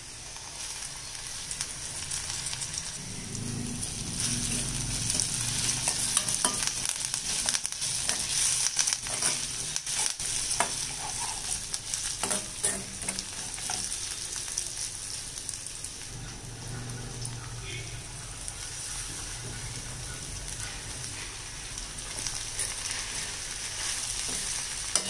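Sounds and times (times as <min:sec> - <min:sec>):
onions sizzling in hot oil: 0:00.0 - 0:25.0
metal spoon scraping a pan: 0:04.2 - 0:14.0, 0:22.1 - 0:25.0.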